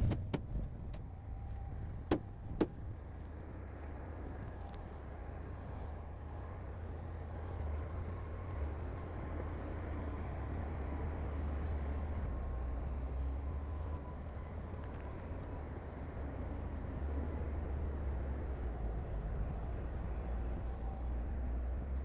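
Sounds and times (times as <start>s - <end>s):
diesel engine rumbling: 0.0s - 1.1s.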